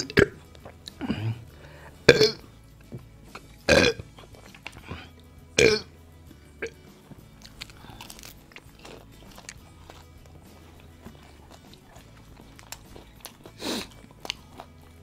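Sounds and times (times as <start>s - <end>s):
faint background music: 0.0s - 15.0s
man chewing crispy chicken: 6.7s - 15.0s.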